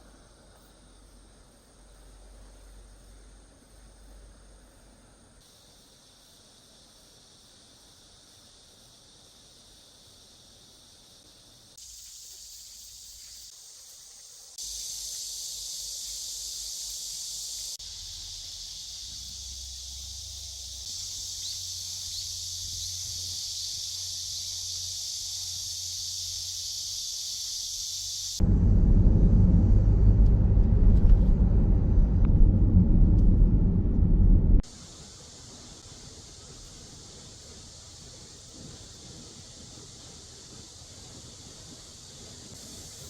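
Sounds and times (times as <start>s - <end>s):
insects shrilling: 5.4s - 28.4s.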